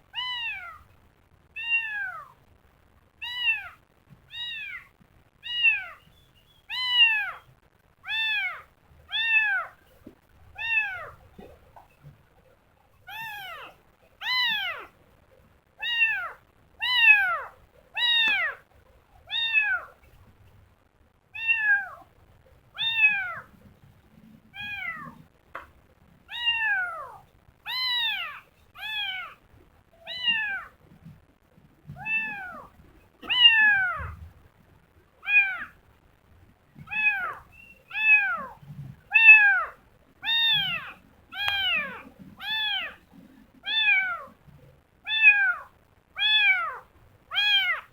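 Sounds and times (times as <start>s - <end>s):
kitten meowing: 0.2s - 0.9s, 1.6s - 2.4s, 3.2s - 6.0s, 6.7s - 9.8s, 10.6s - 11.2s, 13.1s - 14.9s, 15.8s - 18.6s, 19.3s - 20.0s, 21.4s - 22.0s, 22.8s - 23.6s, 24.6s - 25.2s, 26.3s - 29.4s, 30.0s - 30.8s, 31.9s - 34.2s, 35.2s - 35.8s, 36.8s - 43.0s, 43.6s - 44.4s, 45.1s - 47.9s.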